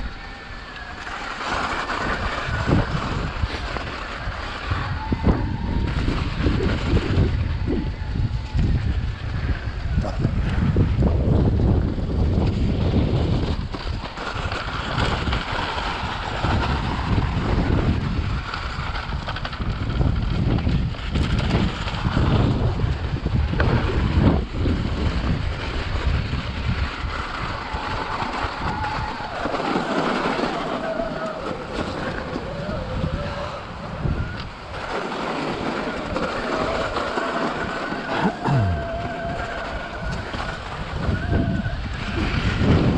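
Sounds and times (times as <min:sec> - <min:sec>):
wind buffeting microphone: 0:00.0 - 0:42.9
wavering whine: 0:38.1 - 0:40.3.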